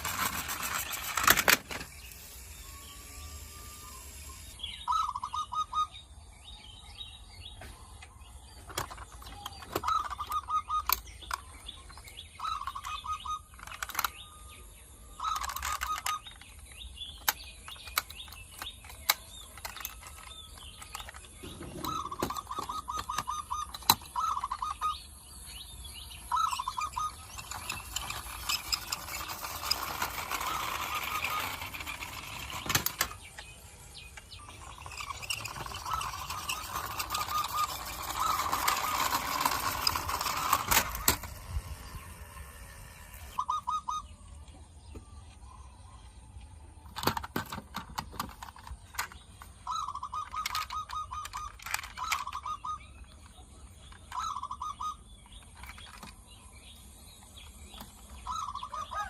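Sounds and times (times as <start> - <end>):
plastic and metal toy clicks: 0.0 - 4.6, 8.7 - 24.8, 26.3 - 43.4, 46.8 - 54.5, 55.3 - 56.3
rapid buzzing rattle: 0.0 - 4.9, 26.4 - 43.4.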